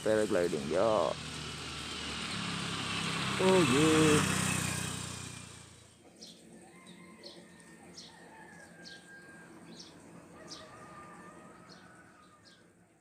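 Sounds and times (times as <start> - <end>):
engine-like hum: 0.0 - 8.4.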